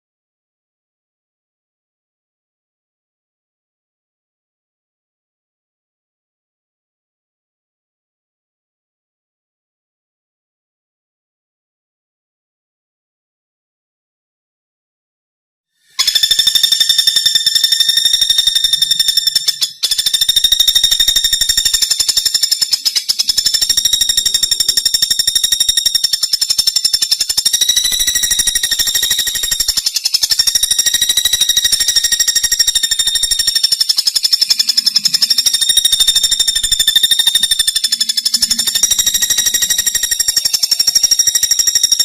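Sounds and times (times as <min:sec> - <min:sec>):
woodpecker rapid trilling call: 0:15.9 - 0:42.0.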